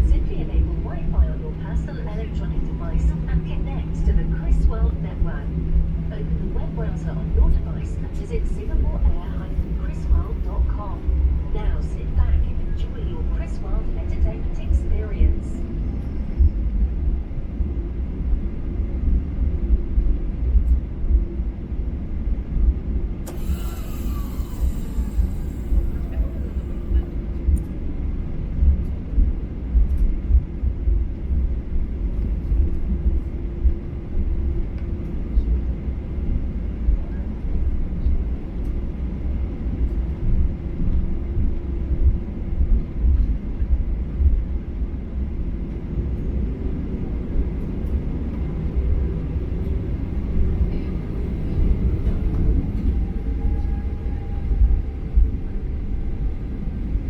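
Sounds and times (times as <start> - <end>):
airplane cabin engine rumble: 0.0 - 57.0
hiss with falling tone: 23.3 - 27.0.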